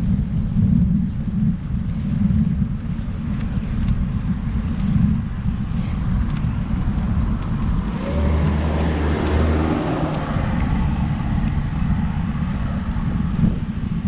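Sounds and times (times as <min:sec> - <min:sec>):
wind rumble on microphone: 0:00.0 - 0:14.0
car passing: 0:06.6 - 0:13.6.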